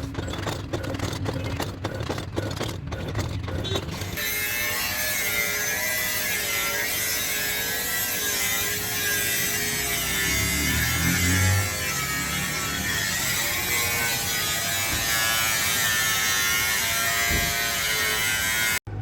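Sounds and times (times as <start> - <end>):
metal knocks and scrapes: 7.4 - 18.7.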